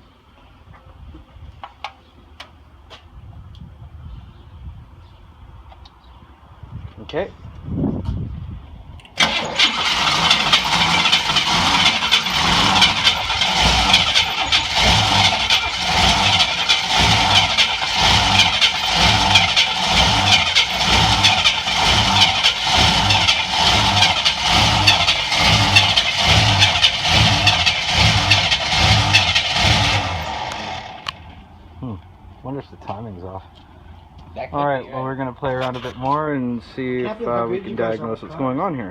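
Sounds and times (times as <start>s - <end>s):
car engine running unevenly: 9.2s - 31.3s.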